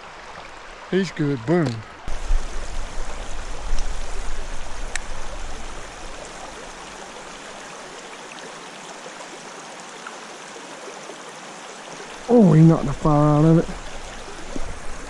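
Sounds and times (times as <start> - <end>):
creek water flowing: 0.0 - 15.0
faint click: 4.8 - 5.1.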